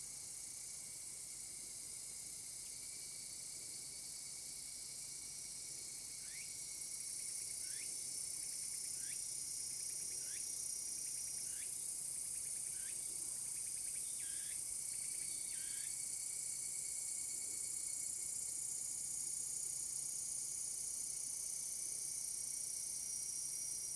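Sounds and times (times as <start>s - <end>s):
cicadas droning: 0.1s - 23.9s
repeating insect call: 6.2s - 6.6s, 7.6s - 7.9s, 8.9s - 11.8s, 12.4s - 13.0s, 13.6s - 16.0s.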